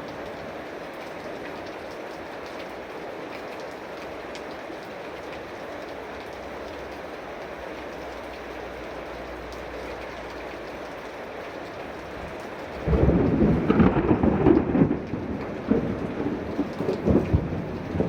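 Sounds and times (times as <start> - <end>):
heavy rain falling: 0.0 - 18.0
thunder clap rumbling: 12.8 - 18.0.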